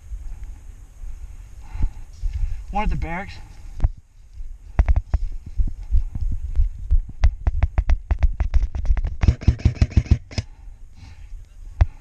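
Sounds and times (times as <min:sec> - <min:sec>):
airsoft rifle shots: 0:09.2 - 0:10.5.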